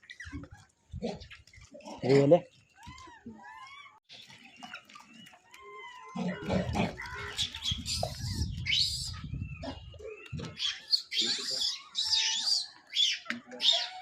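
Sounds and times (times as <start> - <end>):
monkeys squeaking and squealing: 5.7 - 14.0.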